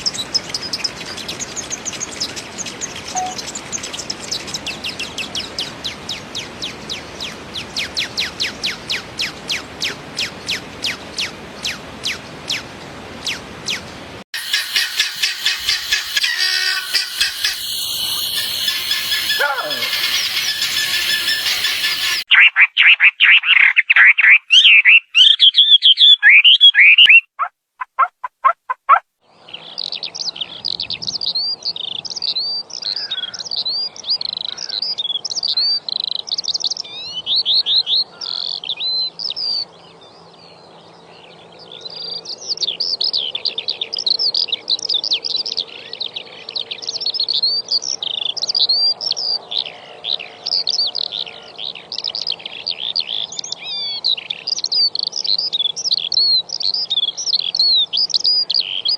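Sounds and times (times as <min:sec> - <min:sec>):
small birds twittering: 0:00.0 - 0:27.2, 0:29.4 - 0:58.9
loud low-pitched bird calls: 0:03.1 - 0:27.2, 0:32.8 - 0:33.6.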